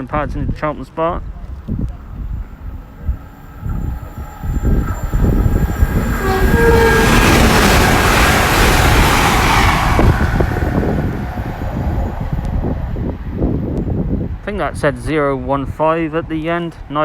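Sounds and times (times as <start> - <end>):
train passing at speed: 1.1 - 14.7
two-note train horn: 2.2 - 9.1.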